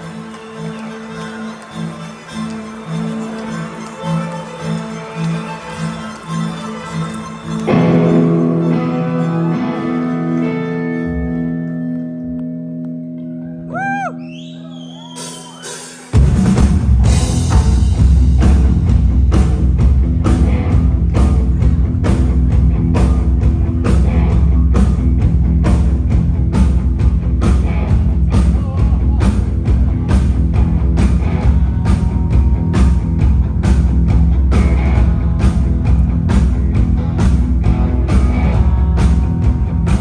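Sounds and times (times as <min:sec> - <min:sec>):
live rock band playing: 0:06.1 - 0:13.6, 0:15.1 - 0:40.0
guitar chord ringing: 0:07.6 - 0:13.7
drums steady beat: 0:15.2 - 0:40.0.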